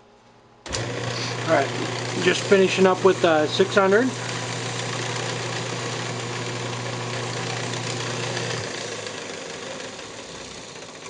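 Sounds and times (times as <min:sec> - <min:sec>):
wood lathe motor hum: 0:00.7 - 0:11.0.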